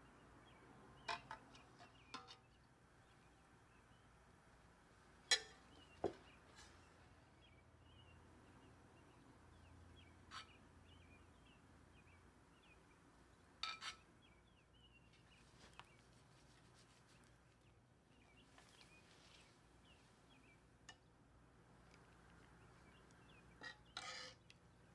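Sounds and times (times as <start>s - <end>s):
birds chirping: 0.0s - 24.9s
utensils clinking on cookware: 5.3s - 5.8s, 13.6s - 14.0s.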